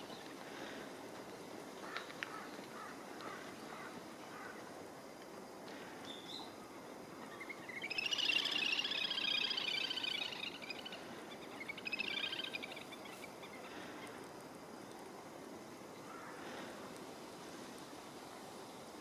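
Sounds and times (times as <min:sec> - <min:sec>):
steady outdoor hiss: 0:00.0 - 0:19.0
songbird twittering: 0:07.2 - 0:13.7.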